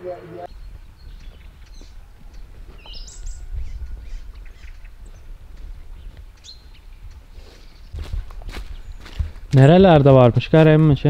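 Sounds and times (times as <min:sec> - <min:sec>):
steady low rumble: 0:00.0 - 0:07.3
birds chirping: 0:00.0 - 0:11.0.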